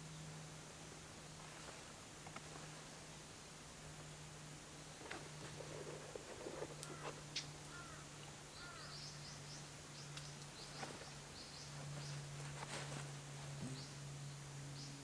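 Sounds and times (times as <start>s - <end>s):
songbirds chirping: 6.8s - 15.0s.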